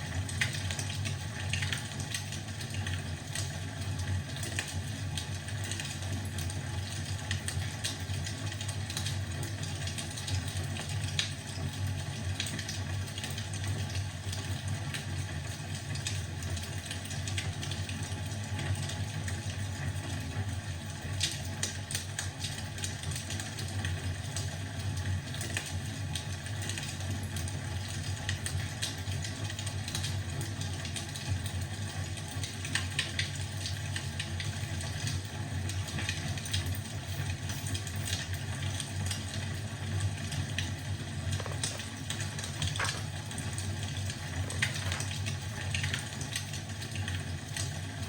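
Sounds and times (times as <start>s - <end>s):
wood fire crackling: 32.2s - 48.0s.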